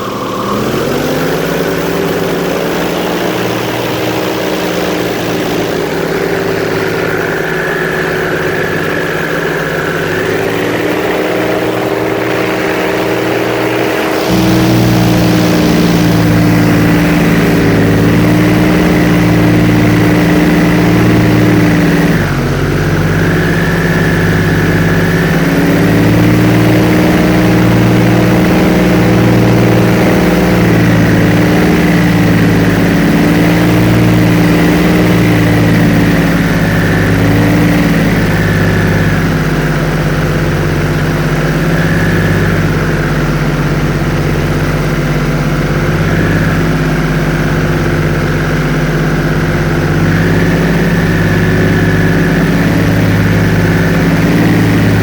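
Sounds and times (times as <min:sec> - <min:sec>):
airboat engine droning: 0:00.0 - 0:55.0.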